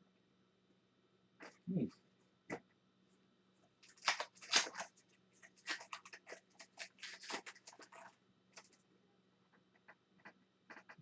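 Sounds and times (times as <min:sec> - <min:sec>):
card packs crackling and rustling: 0:03.8 - 0:08.8.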